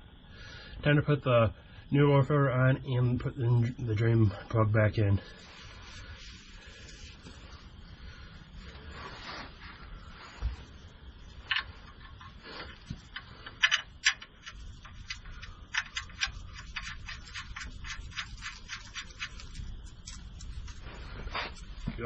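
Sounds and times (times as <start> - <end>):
low steady hum: 0.0 - 22.0
light clicking and ticking: 11.5 - 20.8.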